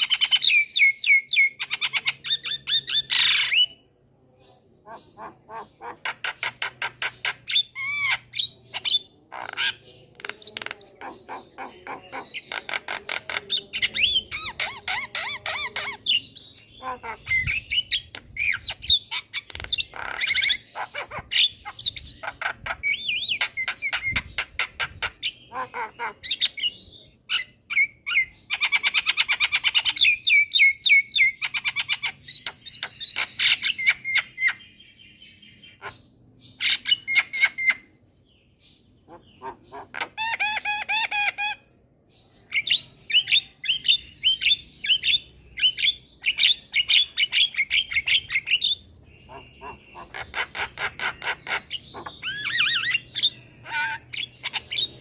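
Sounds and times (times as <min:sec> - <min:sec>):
myna singing clicks and chirps: 0:04.4 - 0:55.0.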